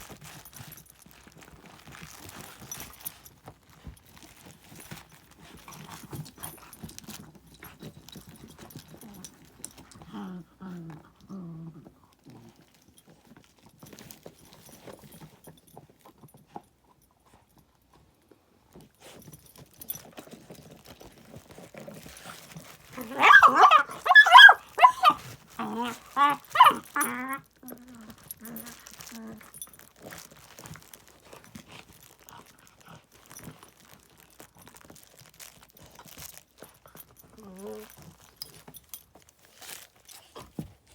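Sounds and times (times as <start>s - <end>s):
puppy rustling among toys: 0.0s - 40.9s
puppy low vocal sounds: 9.9s - 12.5s, 23.0s - 29.5s
puppy barking yelps: 23.0s - 25.2s, 26.2s - 27.2s.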